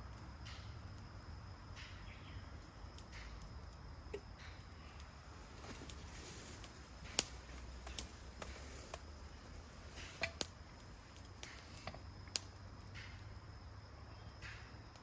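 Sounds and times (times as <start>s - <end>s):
faint steady background noise: 0.0s - 15.0s
sharp clicks and snaps: 6.6s - 9.6s.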